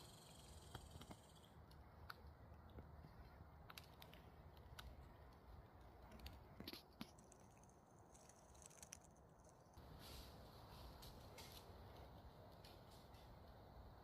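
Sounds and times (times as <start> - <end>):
faint clicks and crackles: 0.3 - 9.8.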